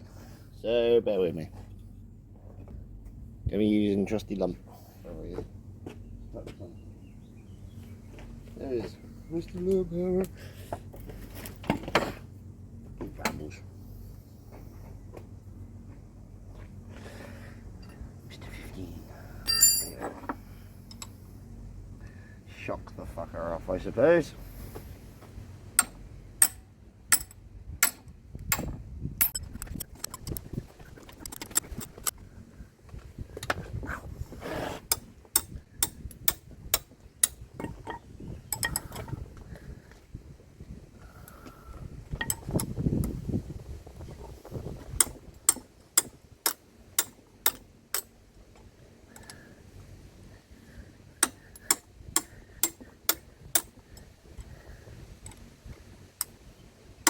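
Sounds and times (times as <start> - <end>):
hammer tapping on metal spanner: 19.4 - 20.1, 25.8 - 29.5, 34.9 - 39.2, 42.2 - 42.7, 45.0 - 48.1, 51.2 - 54.1.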